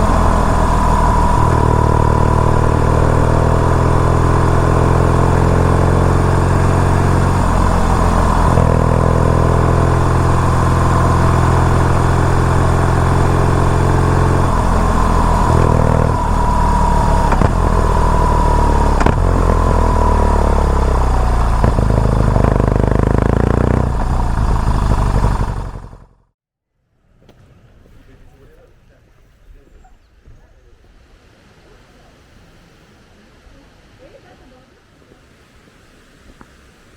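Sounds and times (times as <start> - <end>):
motorcycle engine running: 0.0 - 26.4.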